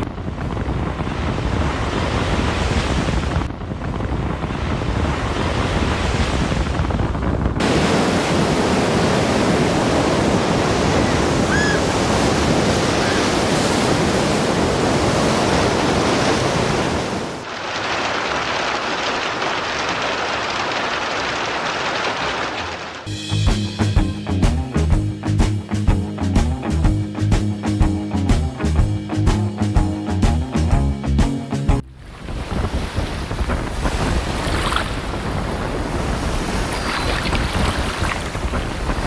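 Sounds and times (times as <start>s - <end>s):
wind: 0.0s - 24.6s, 31.8s - 39.0s
rushing water: 7.6s - 23.1s, 32.0s - 39.0s.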